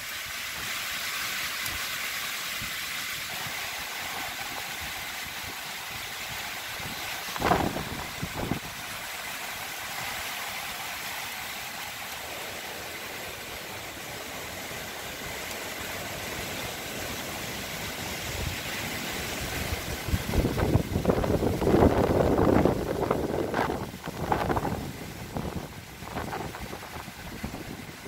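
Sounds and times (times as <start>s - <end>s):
strong wind rushing through trees: 0.0s - 28.0s
wind gusts buffeting microphone: 4.5s - 8.8s, 17.9s - 28.0s.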